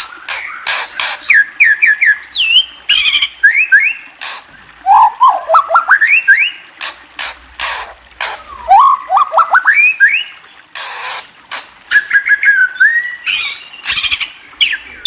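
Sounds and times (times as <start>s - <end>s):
songbird singing: 0.0s - 6.6s, 8.4s - 10.5s, 11.9s - 15.0s
harsh noisy bird calls: 0.0s - 15.0s.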